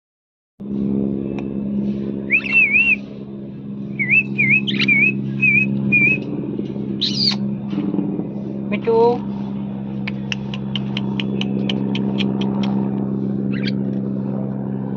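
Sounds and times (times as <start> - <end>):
steady low hum: 0.6 - 14.9
parrot whistling: 2.3 - 3.0, 4.0 - 6.2, 7.0 - 7.4.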